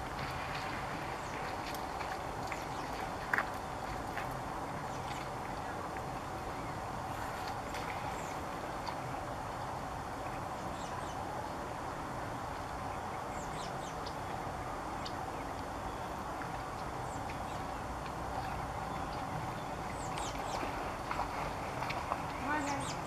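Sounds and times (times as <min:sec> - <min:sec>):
outdoor background noise: 0:00.0 - 0:23.0
small birds chirping: 0:12.9 - 0:21.2, 0:22.3 - 0:23.0.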